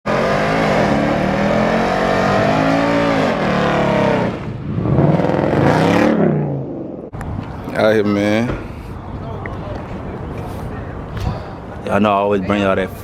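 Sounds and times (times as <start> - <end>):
car engine revving: 0.0 - 7.1.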